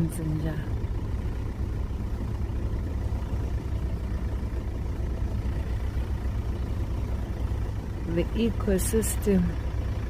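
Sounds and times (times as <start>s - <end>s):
vehicle engine and tyres rumbling: 0.0s - 10.0s.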